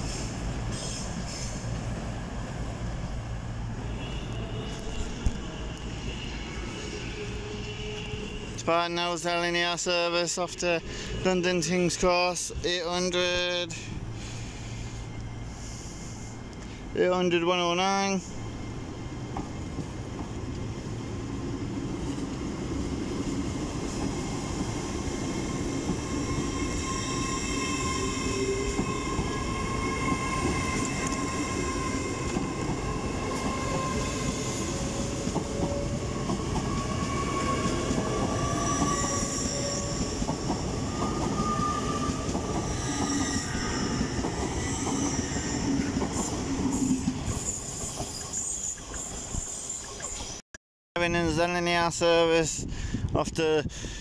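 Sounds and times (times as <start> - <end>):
train wheels rumbling: 0.0 - 49.4
train whine rising in pitch: 18.2 - 48.3.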